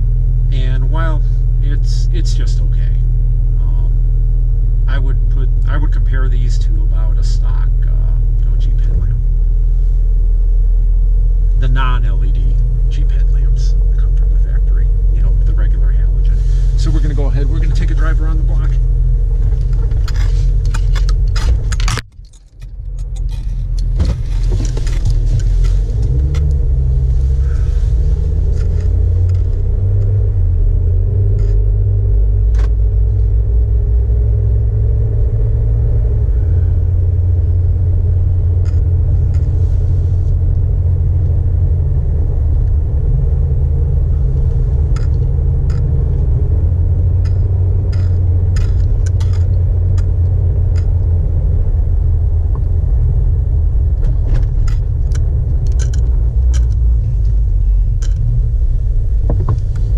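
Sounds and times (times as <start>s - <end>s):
car engine and road rumble: 0.0s - 59.9s
light clicks and rattles: 19.4s - 26.6s, 47.1s - 51.2s, 53.9s - 58.4s.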